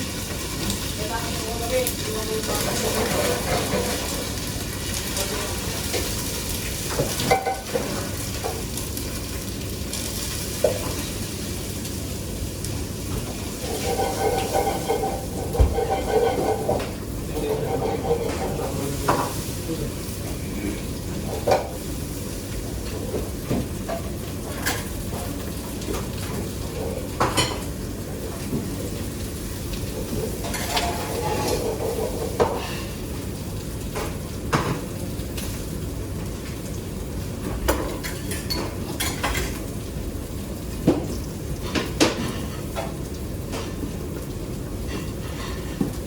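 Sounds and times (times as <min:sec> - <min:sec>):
food sizzling: 0:00.0 - 0:46.0
utensils knocking against pans: 0:01.9 - 0:04.4, 0:06.9 - 0:08.7, 0:13.1 - 0:19.4, 0:29.9 - 0:32.9, 0:37.6 - 0:39.6.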